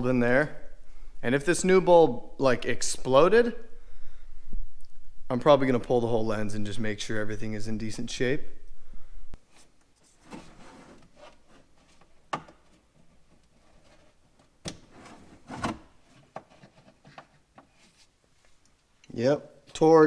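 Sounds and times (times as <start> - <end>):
plastic rubbing and scraping: 9.5 - 18.2.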